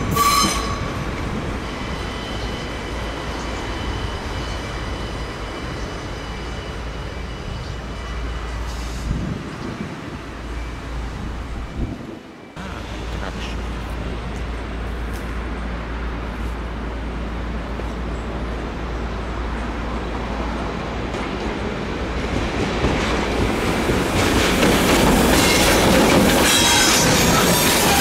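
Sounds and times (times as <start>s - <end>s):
train running on tracks: 0.0s - 28.0s
train wheel clatter: 21.1s - 28.0s.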